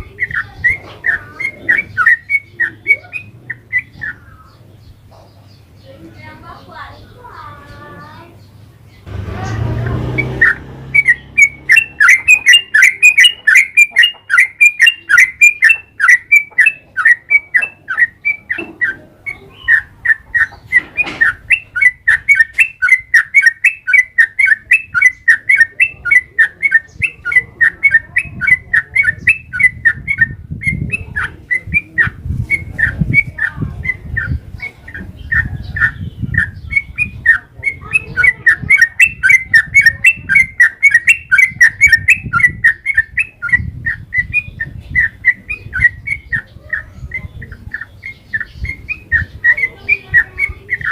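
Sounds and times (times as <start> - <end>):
bulbul chattering song: 0.0 - 50.9.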